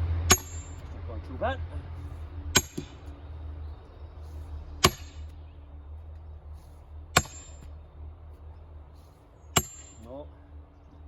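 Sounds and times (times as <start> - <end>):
sledgehammer clanging on steel wedge: 0.3 - 0.9, 2.6 - 3.1, 4.8 - 5.3, 7.2 - 7.7, 9.6 - 10.2.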